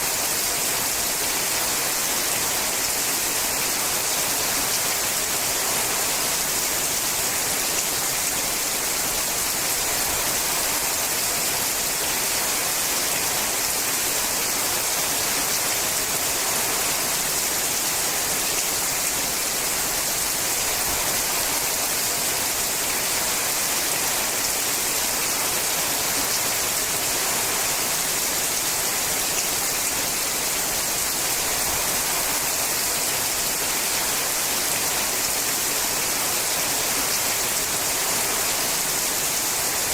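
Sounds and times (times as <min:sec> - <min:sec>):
rain on a metal roof: 0:00.0 - 0:39.9.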